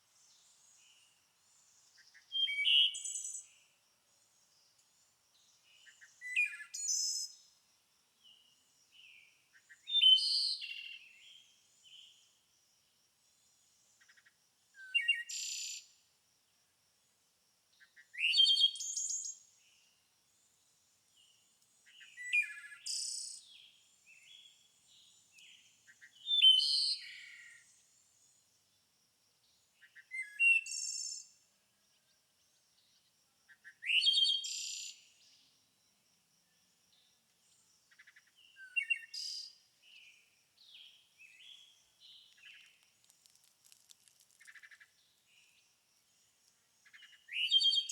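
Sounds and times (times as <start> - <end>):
songbird singing: 0.0 - 16.1, 17.7 - 28.8, 29.4 - 47.9.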